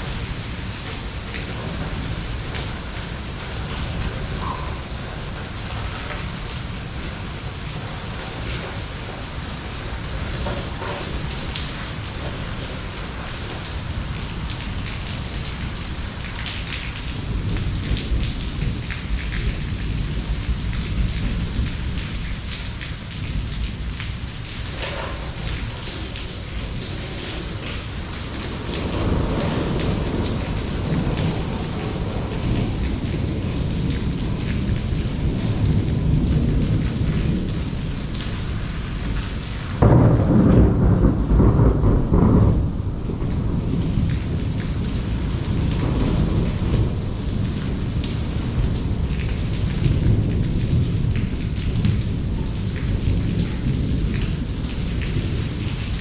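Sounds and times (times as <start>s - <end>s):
heavy rain falling: 0.0s - 56.0s
loud roll of thunder: 0.0s - 56.0s
raindrops pattering close by: 0.0s - 56.0s.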